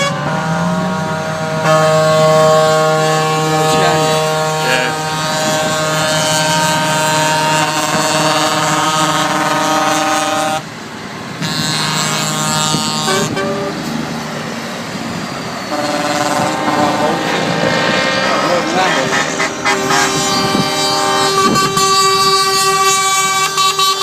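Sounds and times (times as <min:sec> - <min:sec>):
truck air horn blasts: 0:00.0 - 0:10.7, 0:11.3 - 0:14.4, 0:15.1 - 0:24.0
passing trucks: 0:00.0 - 0:24.0.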